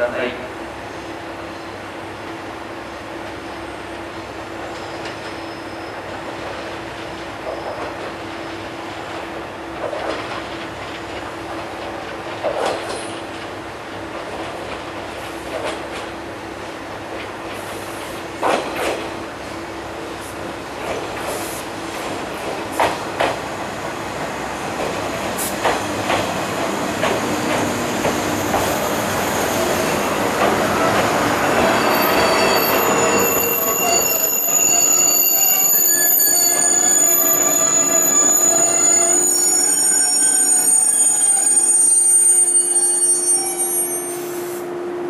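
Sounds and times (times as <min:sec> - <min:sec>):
train brake and wheel squeal: 0:04.7 - 0:06.2, 0:07.4 - 0:08.2, 0:30.9 - 0:44.6.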